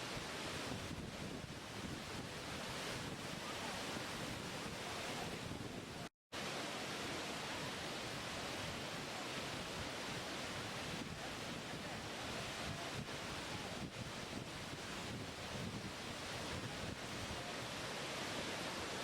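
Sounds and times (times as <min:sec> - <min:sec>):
rushing falling water: 0:00.0 - 0:19.0.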